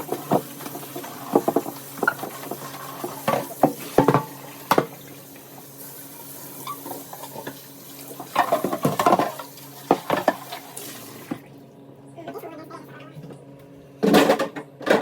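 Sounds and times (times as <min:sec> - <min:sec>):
dishes clattering: 0:00.0 - 0:05.0, 0:08.3 - 0:10.6, 0:14.0 - 0:15.0.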